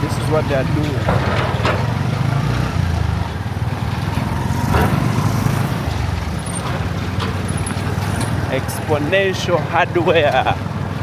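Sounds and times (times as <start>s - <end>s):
road noise: 0.0s - 11.0s
vehicle engine droning: 0.0s - 11.0s.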